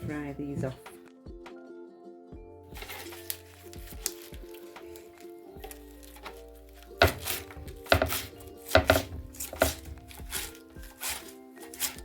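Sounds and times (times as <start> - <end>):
background music: 0.0 - 12.0
knife chopping on cutting board: 6.9 - 12.0.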